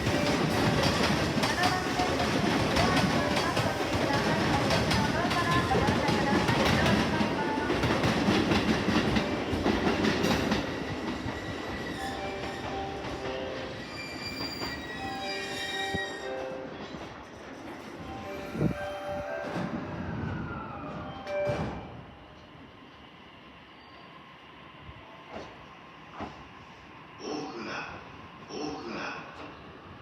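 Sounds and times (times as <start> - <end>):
train wheels clattering over rails: 0.0 - 15.2
high-pitched wheel and brake squeals: 10.7 - 12.6, 13.8 - 16.3, 23.7 - 24.1.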